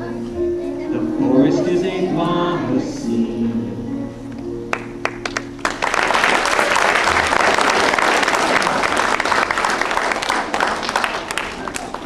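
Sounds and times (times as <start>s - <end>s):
audience applause: 4.7s - 12.0s.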